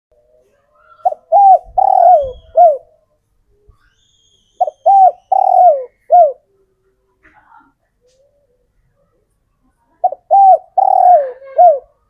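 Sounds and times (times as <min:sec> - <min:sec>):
dove cooing: 0:00.3 - 0:03.0, 0:04.6 - 0:06.5, 0:10.0 - 0:12.0.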